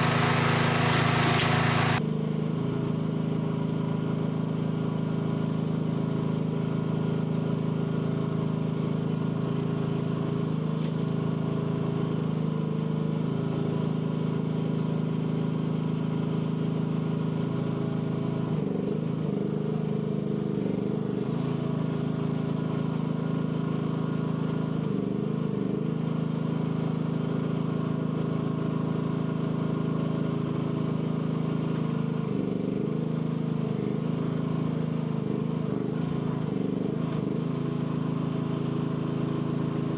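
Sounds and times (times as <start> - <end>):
excavator engine running: 0.0 - 2.0.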